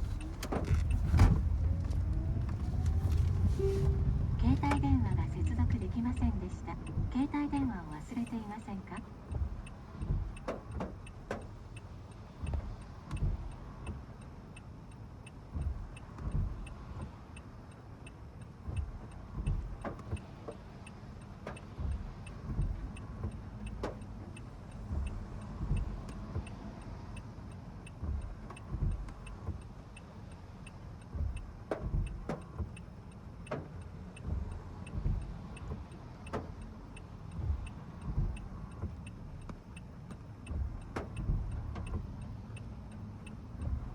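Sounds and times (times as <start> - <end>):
low thumps: 0.0 - 8.3
low car rumble: 0.0 - 43.9
turn signal ticking: 0.0 - 43.9.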